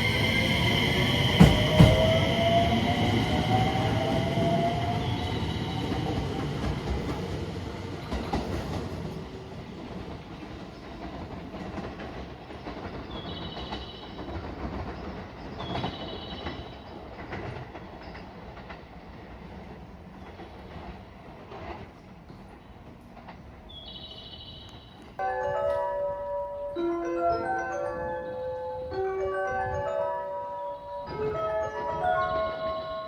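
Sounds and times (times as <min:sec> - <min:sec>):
train wheels clacking: 0:00.0 - 0:25.2
high chirping tones: 0:24.0 - 0:33.0.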